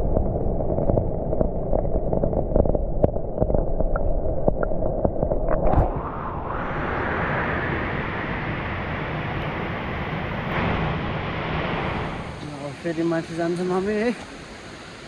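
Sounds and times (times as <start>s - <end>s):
low rumbling: 0.0s - 13.7s
waterfall rushing water: 6.8s - 15.0s.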